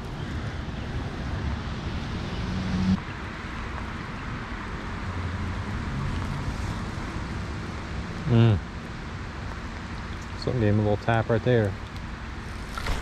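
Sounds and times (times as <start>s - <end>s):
flowing river water: 11.7s - 13.0s.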